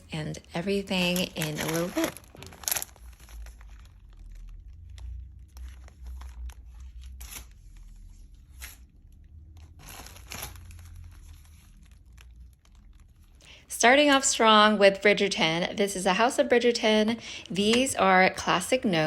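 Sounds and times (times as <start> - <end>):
packaging tearing and crinkling: 1.0 - 13.4.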